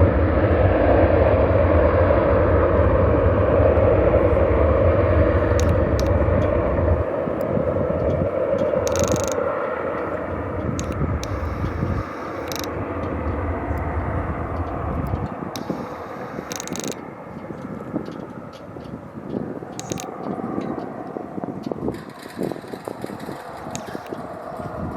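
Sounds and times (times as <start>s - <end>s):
faint clicks: 5.5s - 6.6s, 8.6s - 10.2s, 10.8s - 13.9s, 14.5s - 20.9s, 21.6s - 24.6s.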